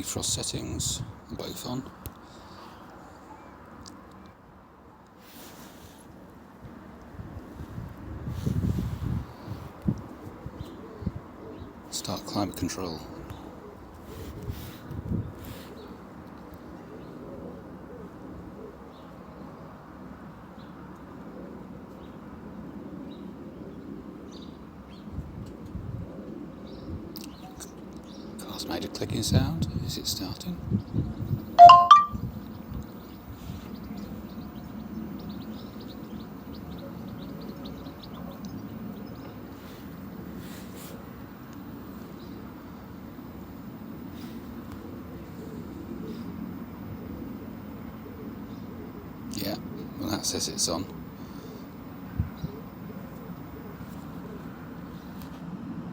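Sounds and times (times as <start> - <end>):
faint bird chirps: 31.6 - 32.2
steady background noise: 33.0 - 55.9.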